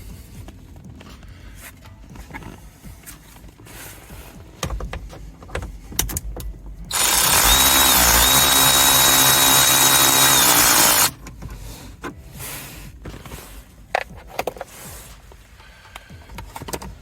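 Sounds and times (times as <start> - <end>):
power drill whining: 6.9 - 11.1.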